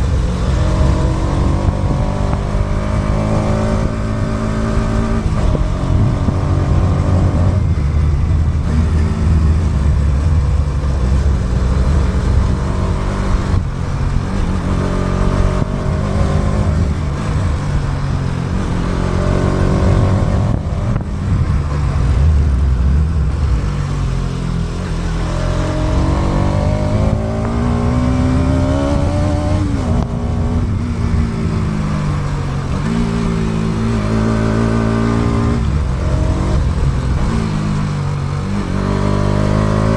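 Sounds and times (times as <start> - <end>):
motorcycle engine running: 0.0 - 39.9
wind rumble: 0.0 - 39.9.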